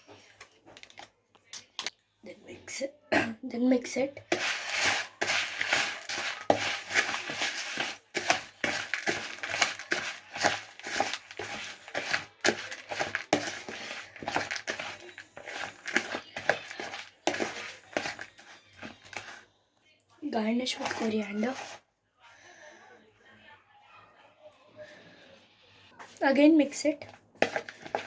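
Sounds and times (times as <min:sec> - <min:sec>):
spoon crunching dry noodles: 0:04.2 - 0:19.4, 0:27.4 - 0:28.0.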